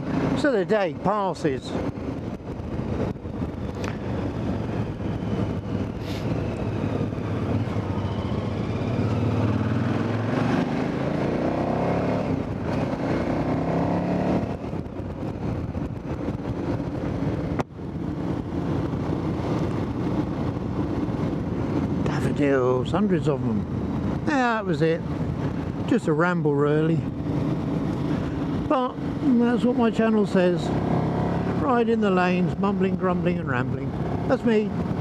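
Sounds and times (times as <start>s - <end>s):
road and wind noise: 0.0s - 35.0s
motorcycle engine running: 6.7s - 22.0s.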